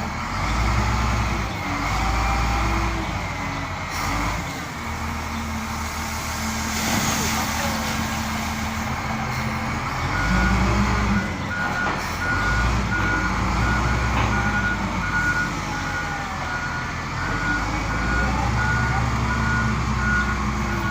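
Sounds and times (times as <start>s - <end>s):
bulldozer diesel engine: 0.0s - 20.9s
reversing alarm beeping: 10.1s - 20.9s.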